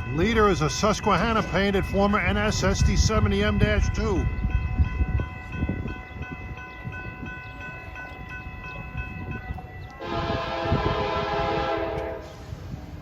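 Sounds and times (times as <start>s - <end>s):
freight locomotives rumbling: 0.0s - 13.0s
locomotive horn chord: 10.0s - 12.6s.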